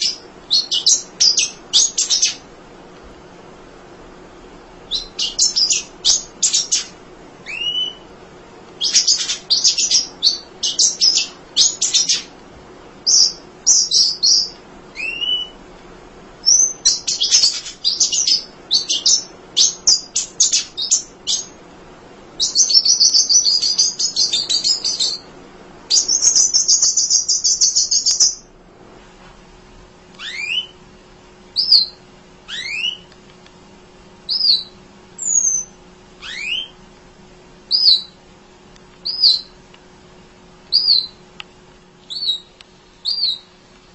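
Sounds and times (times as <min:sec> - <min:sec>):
bird chirping and trilling: 0:00.0 - 0:02.5, 0:04.9 - 0:08.1, 0:08.8 - 0:12.3, 0:13.0 - 0:15.6, 0:16.4 - 0:21.6, 0:22.4 - 0:25.3, 0:25.9 - 0:28.5, 0:30.2 - 0:30.8, 0:31.6 - 0:33.1, 0:34.3 - 0:36.8, 0:37.7 - 0:38.2, 0:39.0 - 0:39.6, 0:40.7 - 0:41.2, 0:42.1 - 0:43.5.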